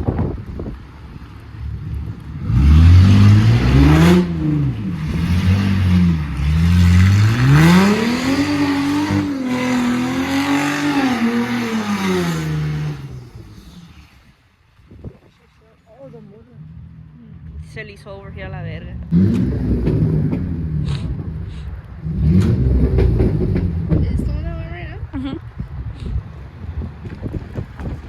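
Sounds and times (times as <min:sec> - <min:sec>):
car engine revving: 0:00.9 - 0:14.3, 0:16.0 - 0:24.7.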